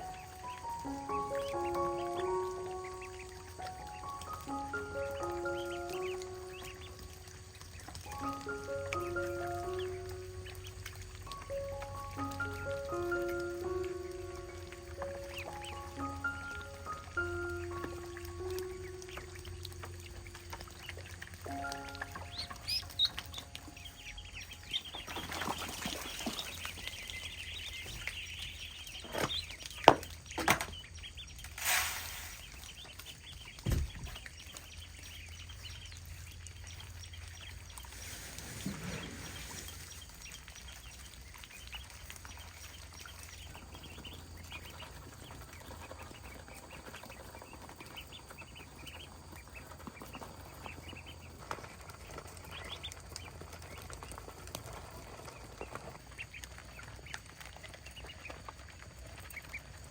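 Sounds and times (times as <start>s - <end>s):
chickens clucking and chirping: 0.0s - 31.6s, 32.2s - 59.9s
dull thump: 33.6s - 34.2s.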